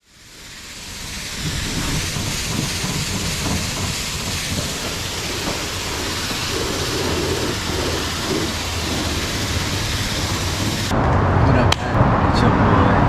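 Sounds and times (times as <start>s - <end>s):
deep rumble: 0.0s - 13.0s
steady rushing noise: 0.0s - 13.0s.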